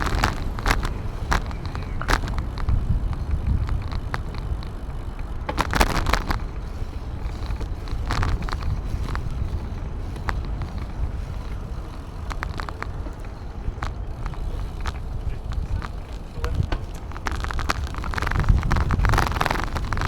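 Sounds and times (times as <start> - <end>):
bicycle clicks and rattles: 0.0 - 20.0
wind rumbling over microphone: 0.0 - 20.0.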